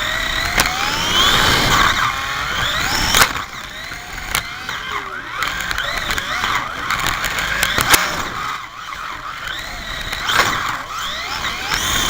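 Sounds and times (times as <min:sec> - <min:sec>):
slot car electric motors whining: 0:00.0 - 0:12.0
sharp clacks: 0:02.8 - 0:08.5, 0:09.5 - 0:10.8.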